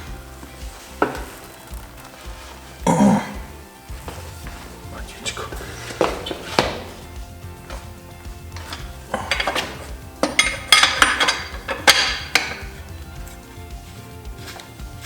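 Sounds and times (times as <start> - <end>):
background music: 0.0 - 15.0
metal tools clinking and clattering: 4.1 - 15.0.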